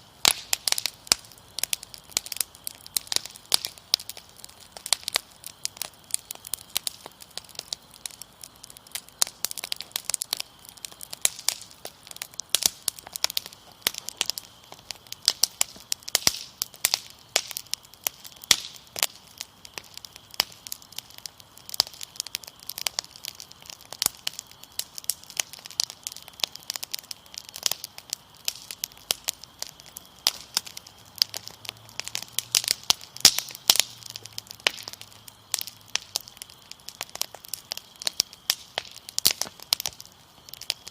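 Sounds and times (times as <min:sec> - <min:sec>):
crickets trilling: 0:00.0 - 0:40.9
wood fire crackling: 0:00.0 - 0:40.9.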